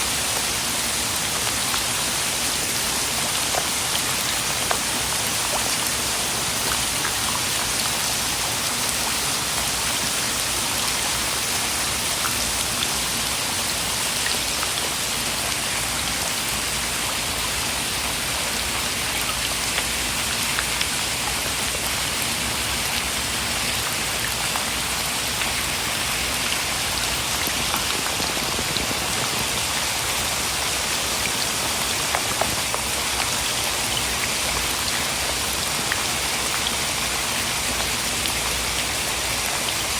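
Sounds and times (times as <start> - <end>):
steady rain hiss: 0.0 - 39.9
faint ticks of raindrops: 0.2 - 13.2, 17.4 - 23.1, 23.7 - 39.9.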